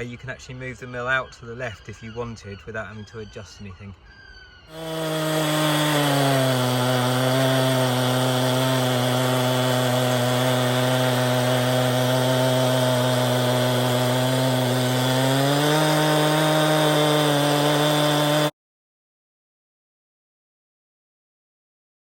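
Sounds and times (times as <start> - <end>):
chainsaw cutting a log: 4.7 - 18.6.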